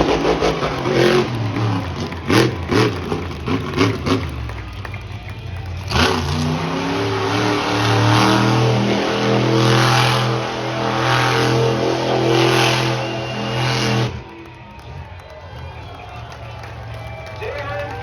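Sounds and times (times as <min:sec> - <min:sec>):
truck engine revving hard: 0:00.0 - 0:16.0.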